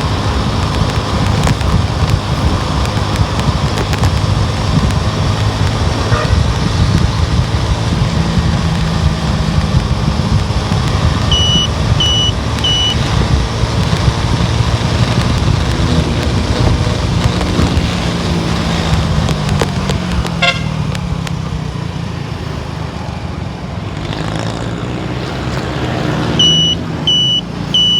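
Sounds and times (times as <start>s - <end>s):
car engine and road noise: 0.0s - 27.9s
short high-pitched beeps: 11.3s - 13.1s, 26.4s - 27.9s.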